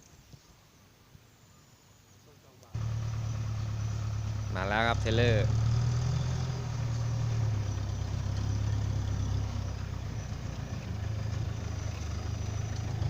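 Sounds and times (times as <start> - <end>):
diesel engine running: 2.8 - 13.0.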